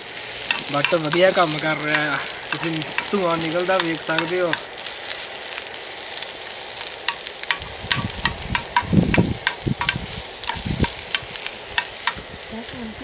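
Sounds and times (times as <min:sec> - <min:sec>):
food sizzling in hot oil: 0:00.0 - 0:13.0
spoon and spatula clicking: 0:00.5 - 0:04.7, 0:07.1 - 0:12.2
dull low knocks: 0:07.5 - 0:12.2.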